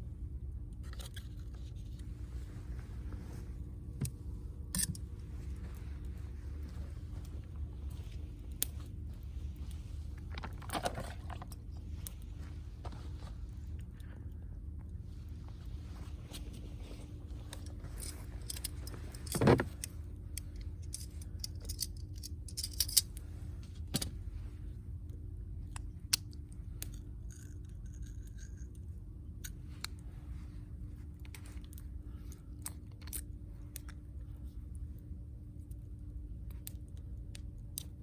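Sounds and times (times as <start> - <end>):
steady low hum: 0.0 - 38.0
objects clicking and clinking: 20.8 - 23.1.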